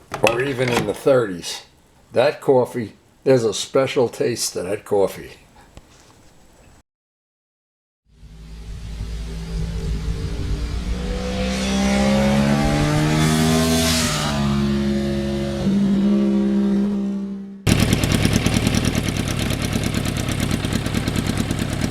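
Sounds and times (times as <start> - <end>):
motorcycle engine revving: 8.1 - 21.9
motorcycle engine idling: 17.7 - 21.9.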